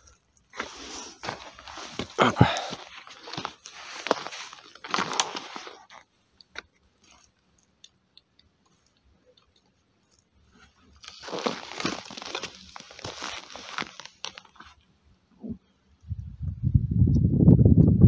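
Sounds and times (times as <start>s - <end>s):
footsteps crunching in snow: 0.6s - 5.9s, 10.9s - 14.8s.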